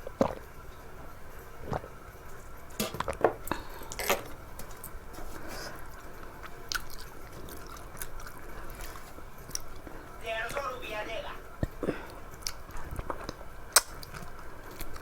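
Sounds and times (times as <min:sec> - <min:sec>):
wet chewing and mouth smacking: 0:00.0 - 0:00.6, 0:05.7 - 0:10.7, 0:11.6 - 0:15.0.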